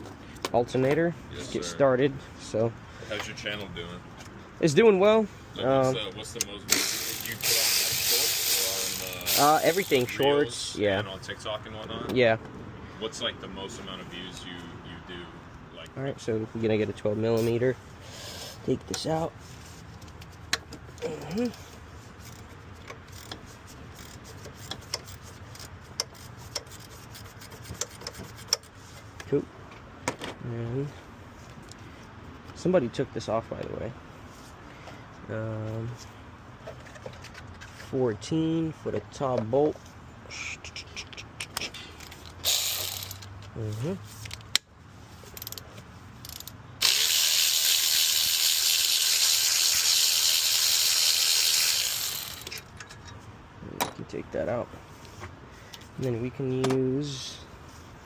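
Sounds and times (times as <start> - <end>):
loud steady hiss: 6.7 - 10.2
socket tool clicking and scraping: 22.2 - 29.1.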